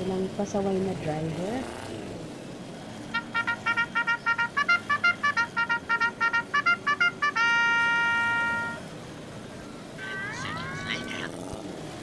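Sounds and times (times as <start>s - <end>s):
musical vehicle horn beeps: 3.1s - 8.9s, 10.0s - 10.5s.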